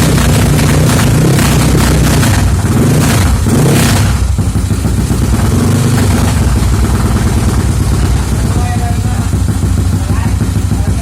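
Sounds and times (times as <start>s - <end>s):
scooter engine revving: 0.0s - 11.0s.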